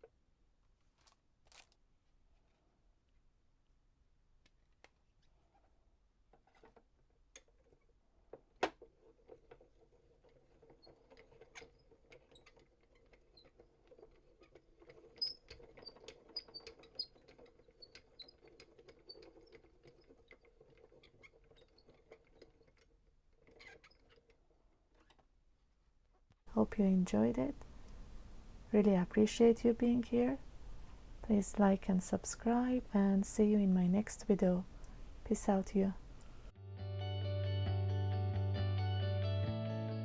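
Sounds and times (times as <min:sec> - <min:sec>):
craft items clicking and rustling: 0:00.8 - 0:01.8
faint steady hum: 0:26.5 - 0:36.5.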